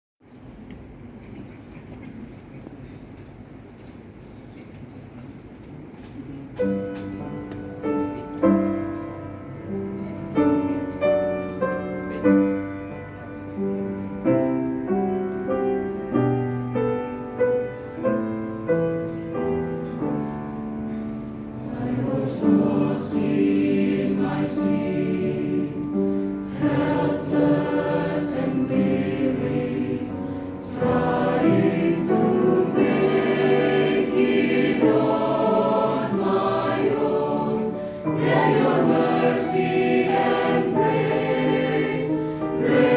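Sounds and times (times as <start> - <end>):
mixed choir singing: 21.5 - 42.9.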